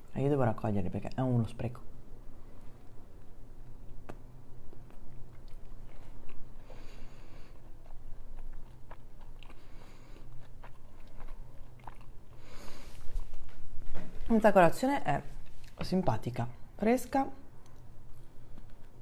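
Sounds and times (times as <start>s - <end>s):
chewing with crunching clicks: 2.7s - 12.5s, 17.6s - 19.0s.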